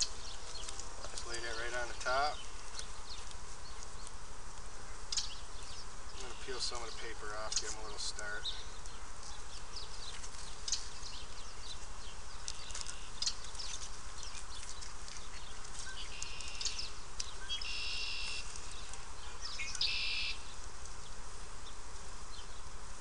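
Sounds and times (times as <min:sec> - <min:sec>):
paper backing crackling: 0:06.2 - 0:17.3.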